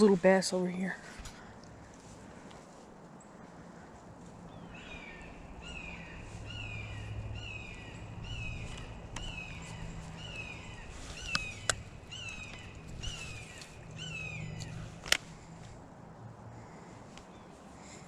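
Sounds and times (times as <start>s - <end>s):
bird calling: 3.2s - 15.6s
sharp clicks: 11.2s - 15.4s.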